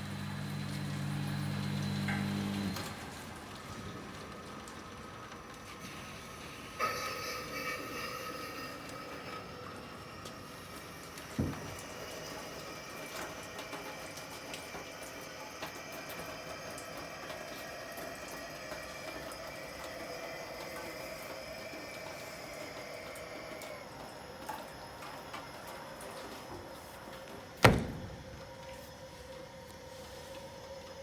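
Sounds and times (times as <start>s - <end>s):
pump hum: 0.0s - 31.0s
dishwasher spraying water: 5.6s - 29.4s
short knock: 27.6s - 28.2s.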